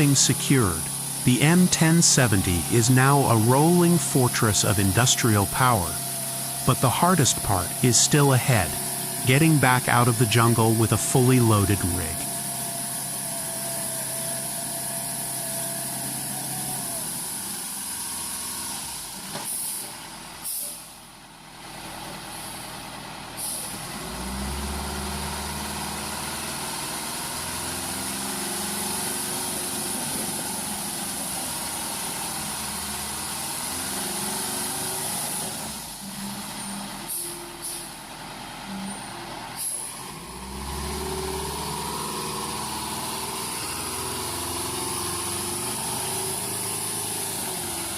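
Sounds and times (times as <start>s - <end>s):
diesel truck engine running: 0.0s - 14.2s, 23.8s - 47.9s.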